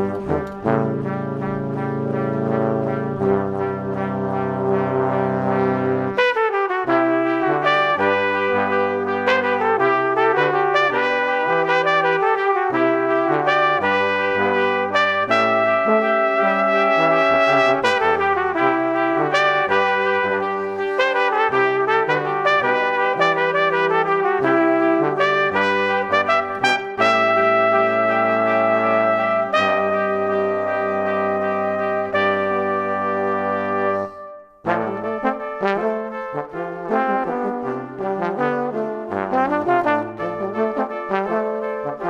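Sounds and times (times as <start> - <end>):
brass band music: 0.0 - 42.0.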